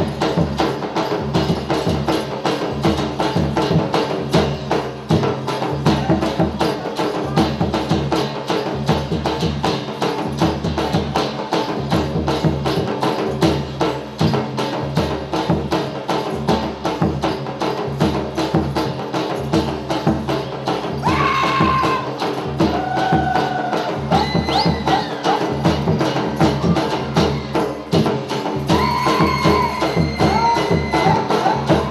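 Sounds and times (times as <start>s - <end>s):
fast percussion beat: 0.0s - 31.9s
folk dance music: 18.2s - 31.9s.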